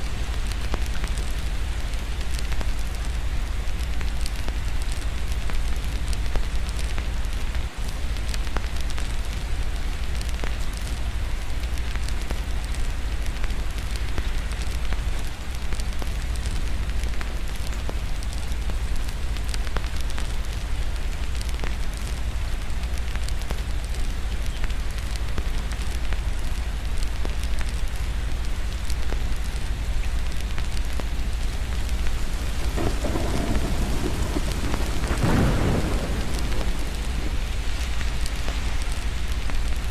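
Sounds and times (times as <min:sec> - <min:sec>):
steady rain: 0:00.0 - 0:39.9
fireplace crackles: 0:16.8 - 0:39.9
thunder rumble: 0:31.7 - 0:39.9.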